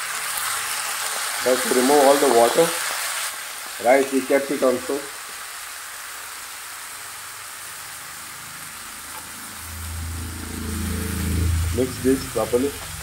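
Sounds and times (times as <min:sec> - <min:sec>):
rice sizzling in a frying pan: 0:00.0 - 0:13.0
low hum: 0:08.8 - 0:13.0.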